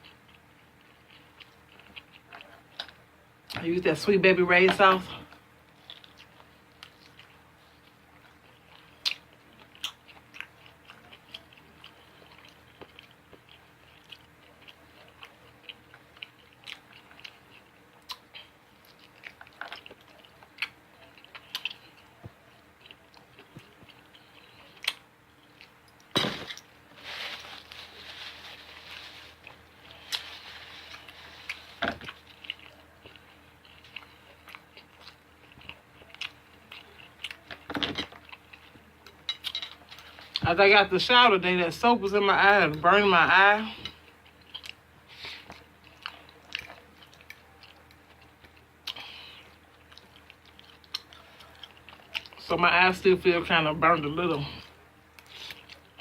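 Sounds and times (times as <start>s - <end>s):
person chewing and biting: 44.0s - 52.4s.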